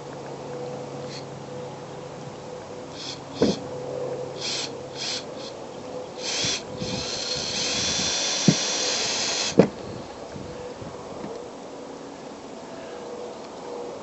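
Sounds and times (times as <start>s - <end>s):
power drill driving screws: 6.2s - 9.7s.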